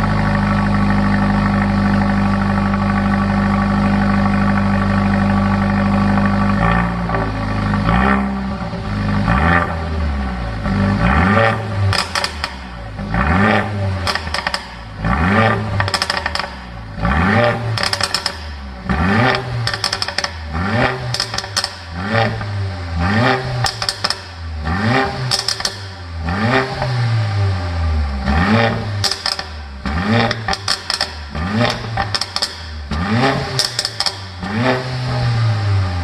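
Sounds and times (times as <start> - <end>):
car engine revving: 0.0 - 36.0
exhaust crackles and pops: 10.6 - 27.2, 28.2 - 36.0.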